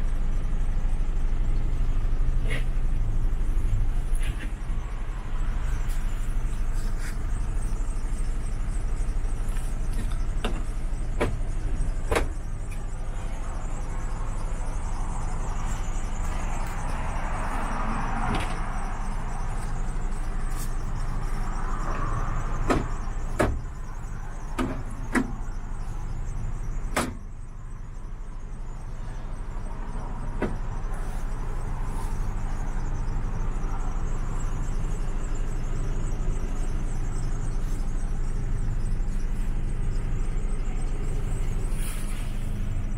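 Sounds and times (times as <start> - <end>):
diesel engine idling: 0.0 - 42.9
sharp clicks and knocks: 22.6 - 23.6.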